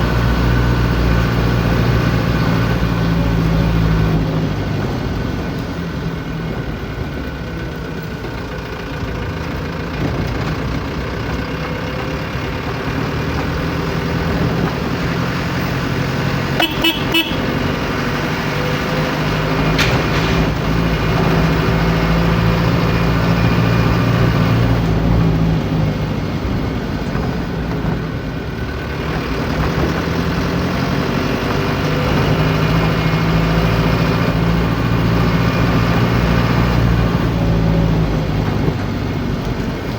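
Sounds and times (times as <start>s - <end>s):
vehicle engine running: 0.0s - 39.9s
short horn toots: 16.5s - 17.6s.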